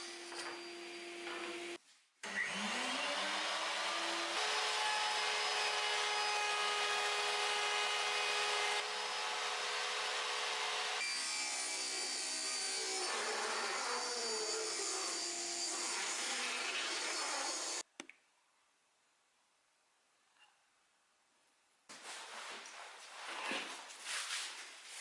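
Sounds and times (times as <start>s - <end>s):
power tool cutting wood: 0.1s - 17.8s.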